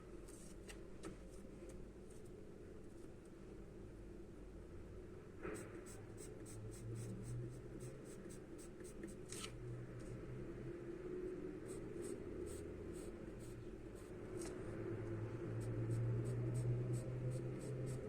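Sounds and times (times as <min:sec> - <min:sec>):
charcoal scratching on paper: 0:15.5 - 0:18.0.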